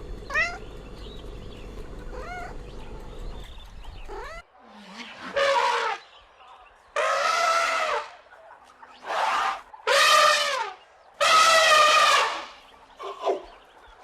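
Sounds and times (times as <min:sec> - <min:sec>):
loud pitched animal calls: 0:07.0 - 0:08.2, 0:09.0 - 0:13.4.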